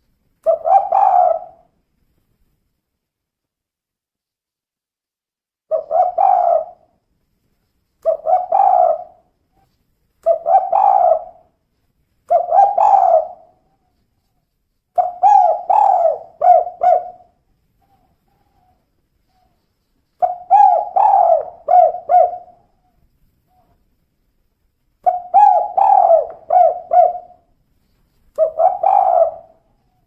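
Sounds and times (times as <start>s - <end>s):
dove cooing: 0.4s - 1.7s, 5.7s - 6.9s, 8.0s - 11.5s, 12.3s - 14.0s, 15.0s - 19.6s, 20.2s - 23.8s, 25.0s - 27.5s, 28.4s - 30.0s.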